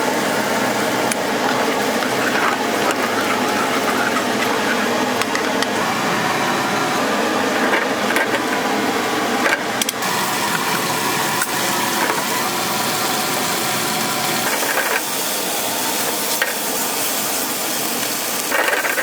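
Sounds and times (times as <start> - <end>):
food sizzling on a griddle: 10.0 - 19.0
metal utensils clicking: 17.8 - 19.0.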